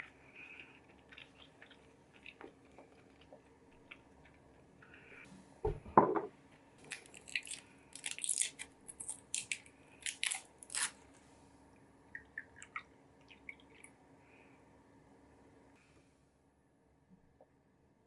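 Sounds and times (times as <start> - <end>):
dull thump: 5.6 - 6.3
crunchy bites and chewing: 6.8 - 11.0.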